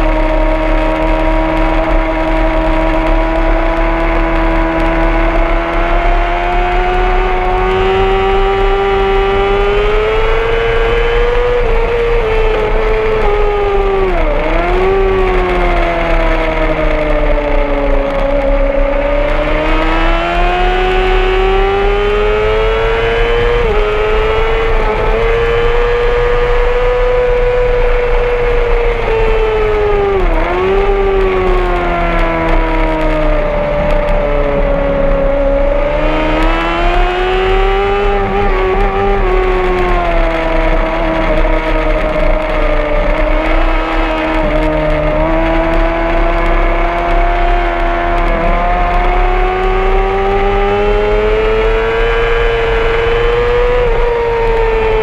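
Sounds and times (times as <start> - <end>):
motorcycle engine at high revs: 0.0 - 55.0.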